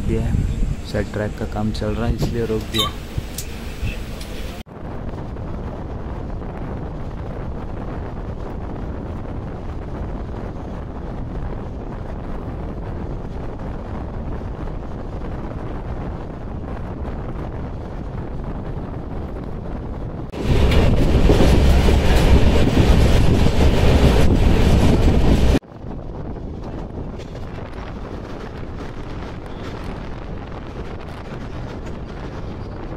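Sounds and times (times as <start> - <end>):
train wheels rumbling on track: 0.0 - 32.9
loud train wheel clatter: 20.3 - 25.6.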